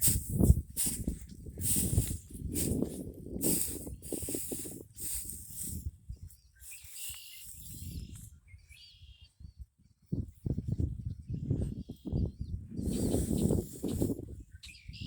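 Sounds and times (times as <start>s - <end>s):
footsteps crunching: 0.0s - 5.9s
small bird singing: 5.0s - 15.0s.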